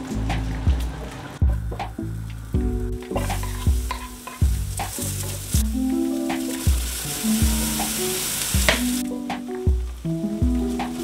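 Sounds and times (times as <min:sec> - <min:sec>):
background music with beat: 0:00.0 - 0:11.0
onion and garlic sizzling in pan: 0:02.0 - 0:11.0.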